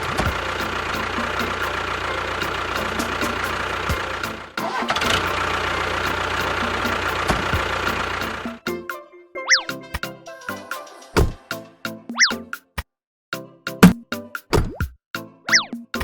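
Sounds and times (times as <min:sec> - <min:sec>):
small motor humming: 0:00.0 - 0:08.6.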